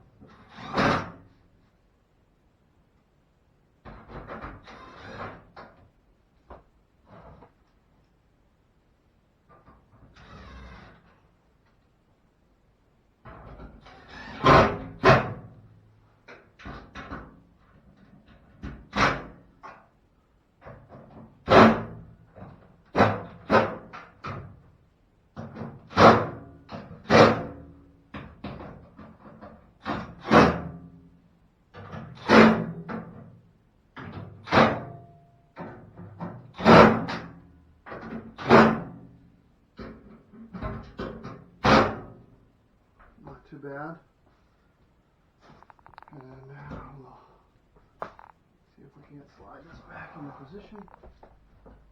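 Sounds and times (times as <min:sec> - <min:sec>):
knocks on sheet-metal cabinet: 0:14.4 - 0:15.5, 0:20.6 - 0:24.6, 0:25.4 - 0:30.9, 0:31.7 - 0:33.2, 0:35.6 - 0:39.0, 0:40.6 - 0:42.2.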